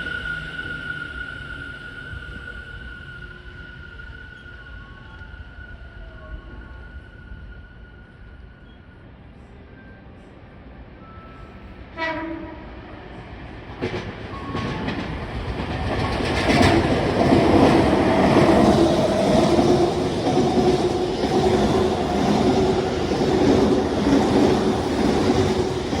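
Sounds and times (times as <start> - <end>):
train wheel and motor noise: 0.0 - 26.0
brief tone: 0.1 - 10.3, 11.0 - 11.8
rhythmic clatter over rail joints: 9.5 - 26.0.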